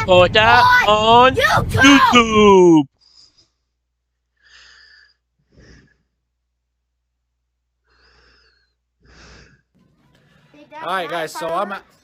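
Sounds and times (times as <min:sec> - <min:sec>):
faint breathy sounds: 0:03.0 - 0:06.4, 0:07.8 - 0:10.6.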